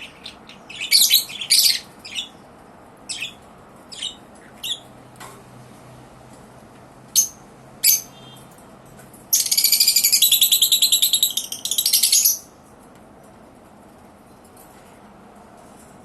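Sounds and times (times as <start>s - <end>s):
lovebirds chirping: 0.0s - 2.4s, 3.1s - 5.0s, 7.2s - 8.4s, 9.3s - 12.5s
shrill bird chattering: 0.0s - 2.4s, 3.1s - 4.9s, 7.2s - 8.4s, 9.3s - 12.5s.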